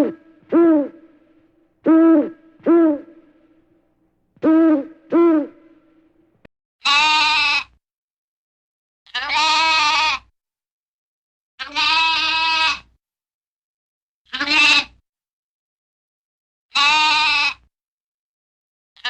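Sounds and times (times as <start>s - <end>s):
goat bleating: 11.7s - 12.7s.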